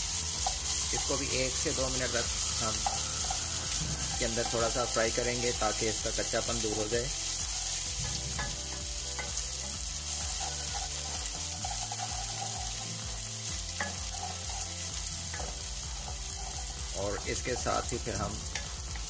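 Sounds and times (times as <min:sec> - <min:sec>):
onions sizzling in hot oil: 0:00.0 - 0:19.0
wooden spoon scraping a pot: 0:07.5 - 0:13.1.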